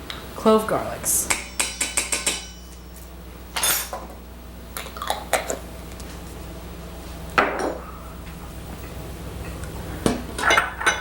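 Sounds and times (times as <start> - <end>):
dishes and utensils clinking: 3.6 - 4.1, 10.4 - 11.0.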